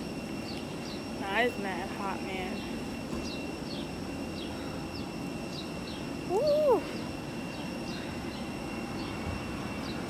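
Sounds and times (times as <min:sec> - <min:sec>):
outdoor background noise: 0:00.0 - 0:10.0
bird chirping: 0:02.6 - 0:10.0.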